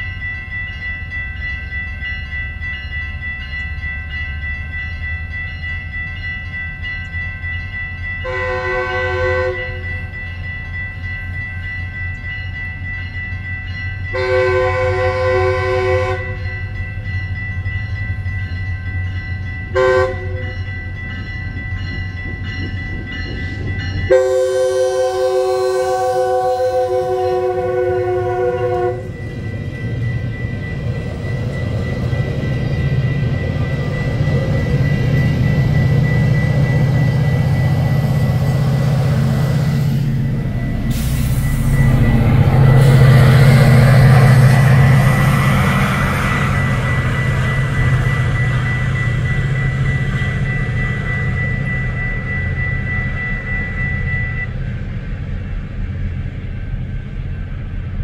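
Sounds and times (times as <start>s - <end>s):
crossing warning bell: 0.0s - 58.0s
diesel locomotive rumble: 0.0s - 58.0s
train horn chord: 8.2s - 9.9s, 14.1s - 16.6s, 19.7s - 20.5s, 24.1s - 29.2s, 40.8s - 45.0s.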